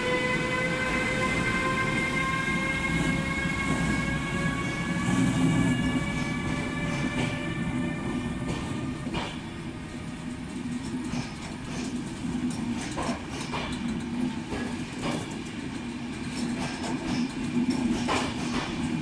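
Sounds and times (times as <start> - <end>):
train wheels clicking over rail joints: 8.4 - 19.0.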